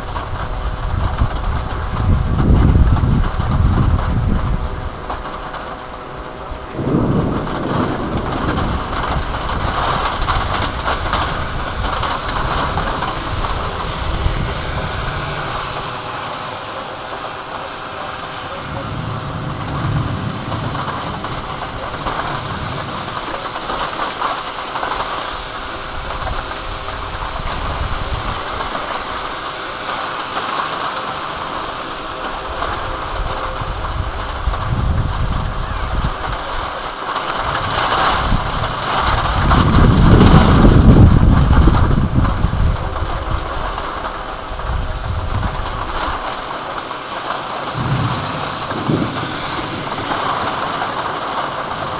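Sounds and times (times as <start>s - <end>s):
low rumbles: 0.0s - 24.4s, 37.6s - 51.9s
heavy rain pouring: 0.0s - 51.9s.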